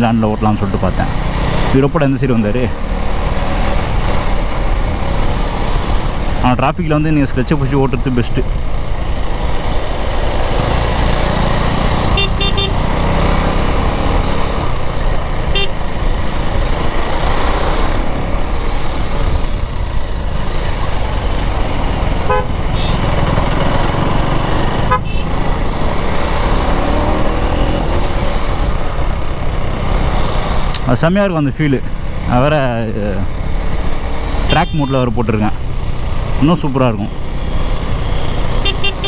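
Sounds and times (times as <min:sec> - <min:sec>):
motorcycle engine: 0:00.0 - 0:39.0
road rumble: 0:00.0 - 0:39.0
car horn toots: 0:12.1 - 0:13.4, 0:15.4 - 0:15.8, 0:22.2 - 0:23.3, 0:24.8 - 0:25.4, 0:34.5 - 0:35.2, 0:38.6 - 0:39.0.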